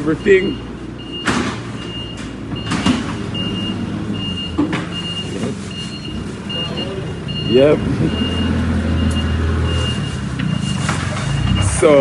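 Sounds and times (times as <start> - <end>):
reversing alarm beeping: 0.0 - 12.0.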